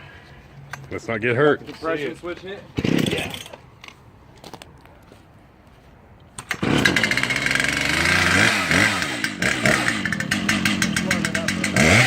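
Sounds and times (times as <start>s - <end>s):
chainsaw starting and revving: 2.8s - 3.5s, 6.4s - 12.0s.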